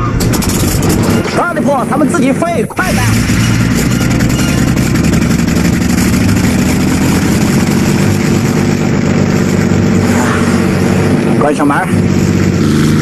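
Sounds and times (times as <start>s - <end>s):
aircraft piston engine running: 3.0s - 13.0s.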